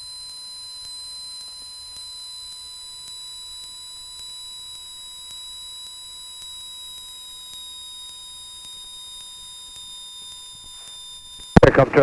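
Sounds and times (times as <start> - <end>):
high electrical whine on intercom: 11.6 - 12.0.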